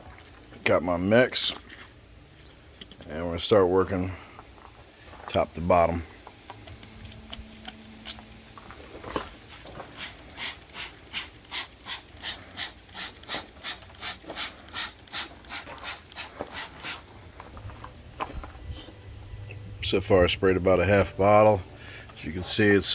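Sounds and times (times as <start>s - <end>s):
spray bottle hissing: 8.0s - 8.3s, 9.0s - 17.2s.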